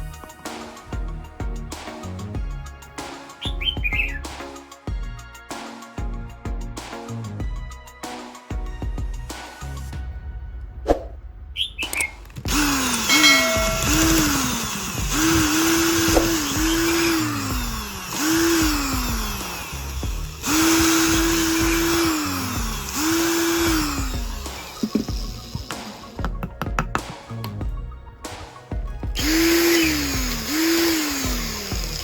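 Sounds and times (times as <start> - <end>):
power tool motor spinning up and down: 12.4 - 26.2, 29.2 - 32.0.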